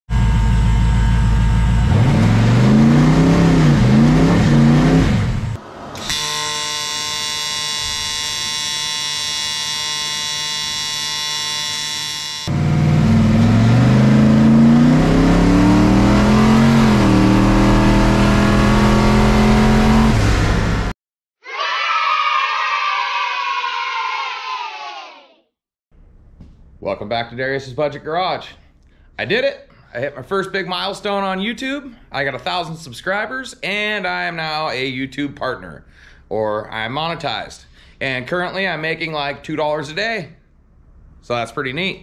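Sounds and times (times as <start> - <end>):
car engine revving: 0.2 - 6.1, 12.5 - 20.9
electric welding buzz: 5.9 - 14.4.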